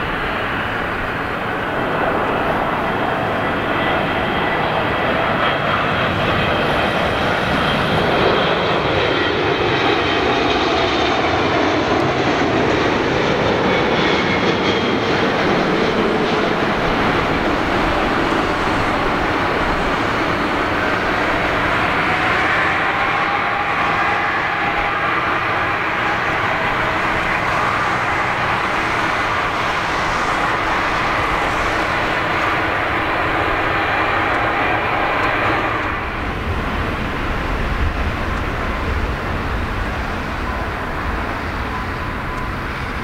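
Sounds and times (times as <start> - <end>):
jet airliner engines passing: 0.0 - 43.0.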